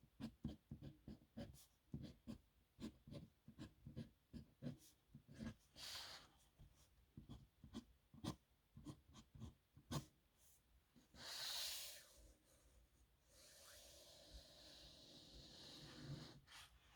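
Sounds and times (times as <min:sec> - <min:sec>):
dip pen scratching on paper: 0:00.2 - 0:05.6.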